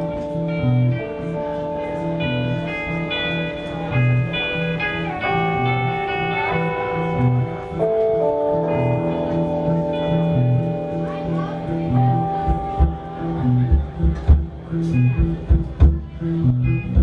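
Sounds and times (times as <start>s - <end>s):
sustained guitar notes: 0.0s - 17.0s
pulsing bass line: 7.1s - 17.0s.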